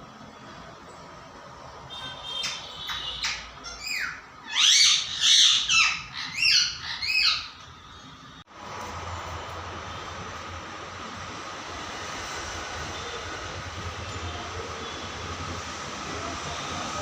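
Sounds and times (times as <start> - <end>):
parrot calling loudly: 2.4 - 7.7.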